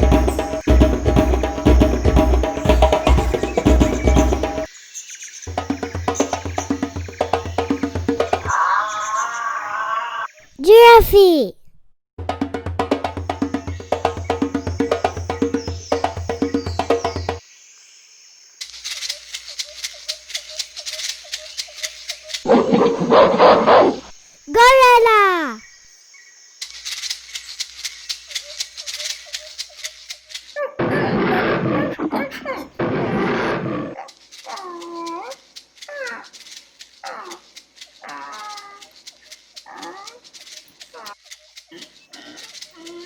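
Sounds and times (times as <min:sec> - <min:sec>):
fast shaker-like rattling: 0:13.0 - 0:17.4, 0:18.6 - 0:23.2, 0:26.5 - 0:30.7, 0:34.0 - 0:43.0.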